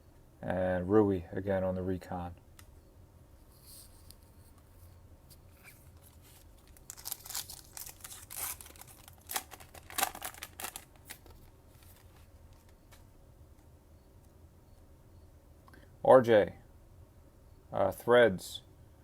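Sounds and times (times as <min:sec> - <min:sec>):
foil wrapper tearing and crinkling: 0:05.6 - 0:12.2.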